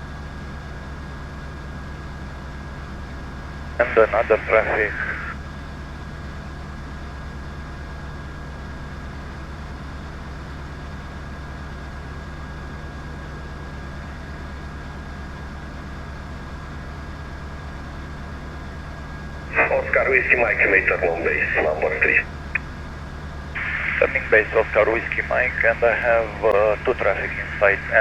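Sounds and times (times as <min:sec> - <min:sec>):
thin steady whine: 0:03.6 - 0:05.4, 0:17.6 - 0:28.0.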